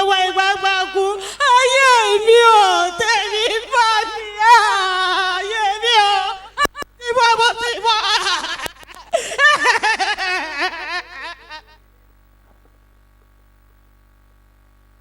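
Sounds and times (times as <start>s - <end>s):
woman wailing: 0.0s - 11.8s.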